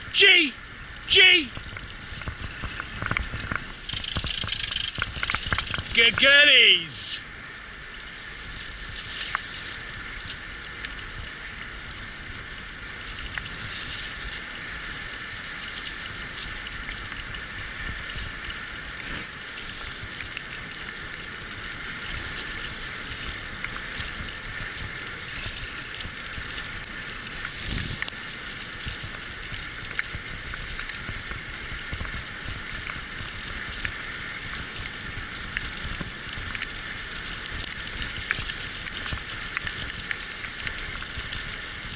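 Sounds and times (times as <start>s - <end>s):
tyres crunching on dirt trail: 0.6s - 41.9s
small clicks: 1.5s - 6.2s.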